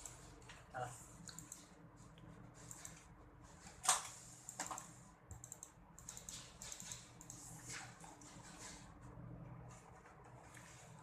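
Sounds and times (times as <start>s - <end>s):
computer keyboard typing: 3.9s - 7.6s.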